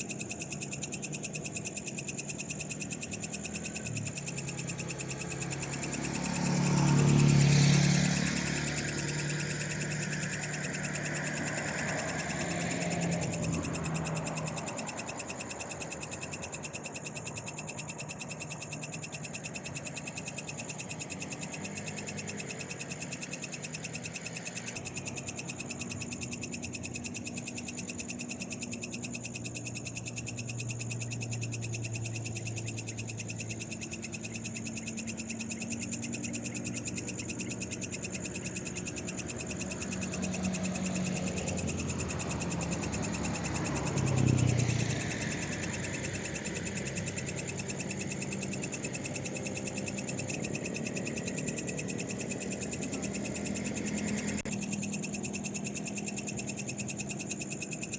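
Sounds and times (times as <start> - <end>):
frogs trilling: 0.0 - 57.9.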